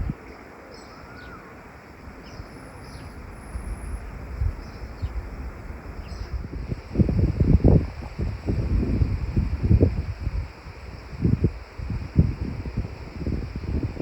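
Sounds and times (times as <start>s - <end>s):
songbirds calling: 0.0s - 6.5s
soft wind rustle: 0.0s - 14.0s.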